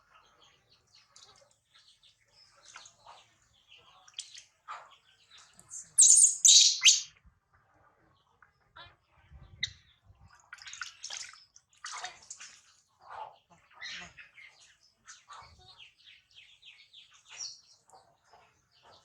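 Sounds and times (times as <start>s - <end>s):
baby monkey chirping: 5.7s - 7.1s.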